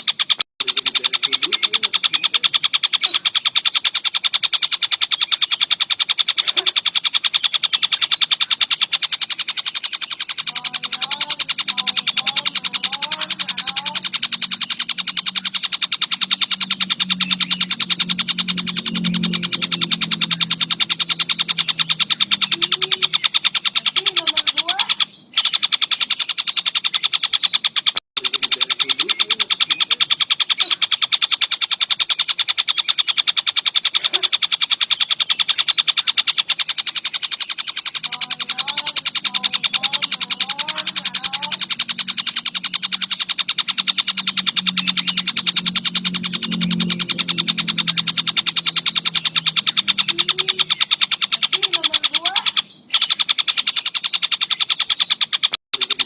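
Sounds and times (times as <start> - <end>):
kingfisher chattering trill: 0.0 - 56.0
low steady hum: 38.0 - 50.9.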